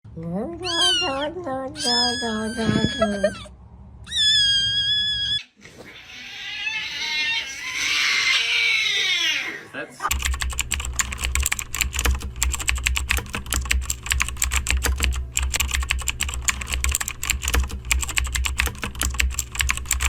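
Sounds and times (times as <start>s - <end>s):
low steady hum: 0.1s - 4.1s
typing on computer keyboard: 10.1s - 20.0s.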